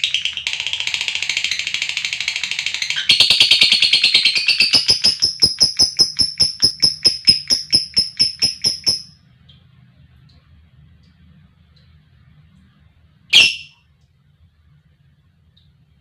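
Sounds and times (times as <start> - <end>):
bird chattering trill: 3.0 - 9.1, 13.3 - 13.7
faint bird peeps: 4.4 - 9.1, 13.3 - 13.7.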